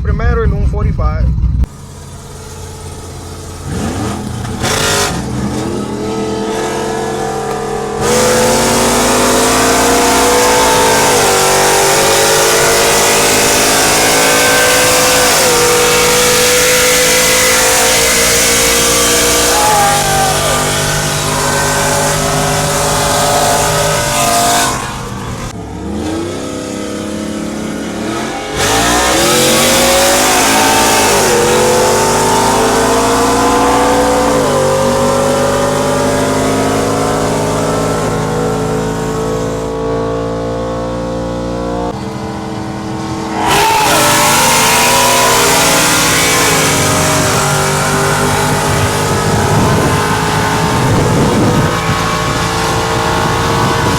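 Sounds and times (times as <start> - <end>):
truck engine at full throttle: 0.0 - 53.9.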